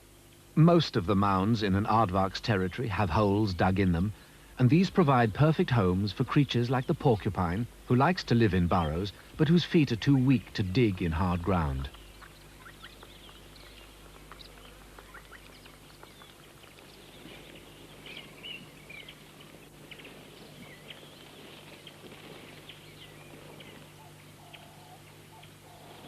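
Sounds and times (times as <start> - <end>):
low steady hum: 0.0 - 26.0
bird chirps and calls: 11.8 - 26.0.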